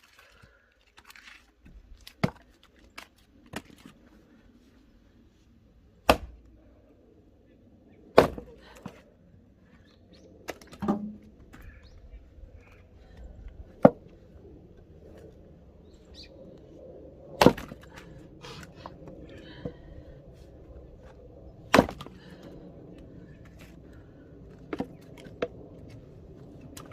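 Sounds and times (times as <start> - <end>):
axe chopping wood: 6.0 - 6.4, 8.2 - 8.9, 10.5 - 11.3, 17.4 - 18.0, 21.7 - 22.2.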